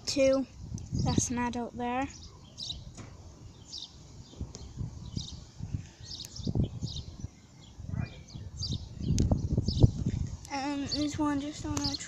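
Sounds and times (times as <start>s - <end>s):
sparrows chirping: 0.0s - 12.0s.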